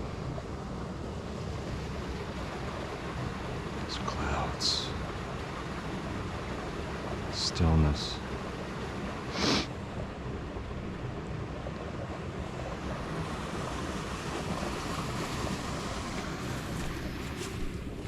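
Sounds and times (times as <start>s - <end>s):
breathy hiss: 9.3s - 9.7s.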